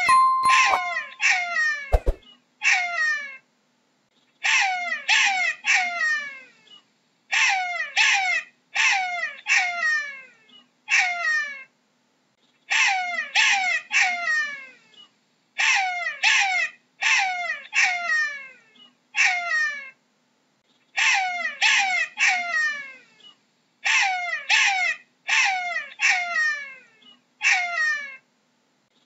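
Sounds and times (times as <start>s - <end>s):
jackal yelping: 21.0s - 22.7s, 23.8s - 26.7s, 27.4s - 28.1s.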